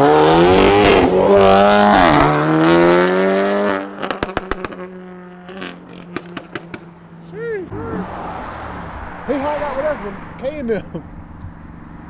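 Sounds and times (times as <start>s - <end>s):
car engine accelerating hard: 0.0s - 6.8s, 7.6s - 12.0s
exhaust pops: 7.7s - 12.0s.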